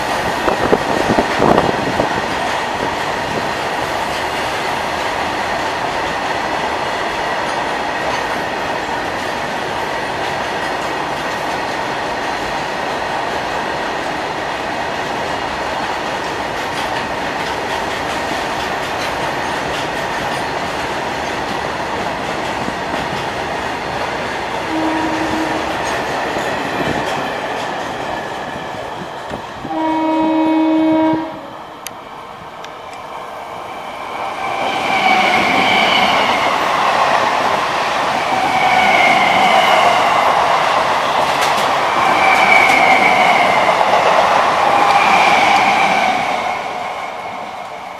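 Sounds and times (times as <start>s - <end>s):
faint train horn: 24.7s - 25.8s, 29.6s - 31.6s
loud train horn blast: 24.7s - 25.8s, 29.6s - 31.6s.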